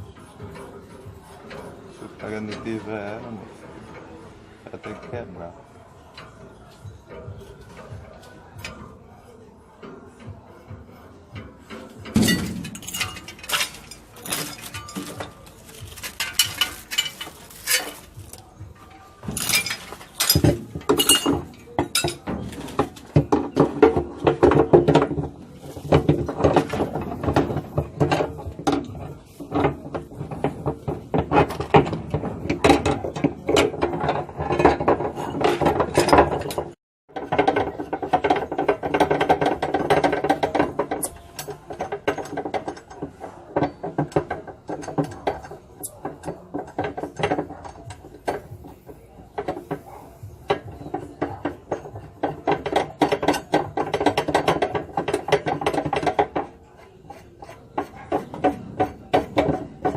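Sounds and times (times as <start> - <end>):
hand tool ratcheting: 12.0 - 18.5.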